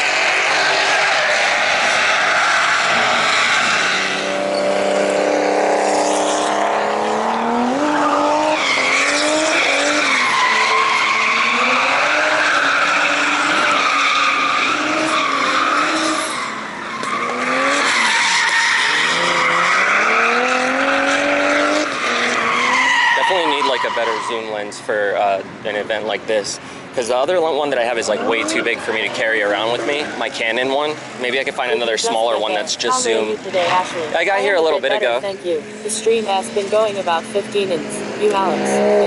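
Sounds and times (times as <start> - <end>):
car engines revving hard: 0.0 - 39.0
tyres squealing: 0.3 - 4.7, 7.8 - 24.6.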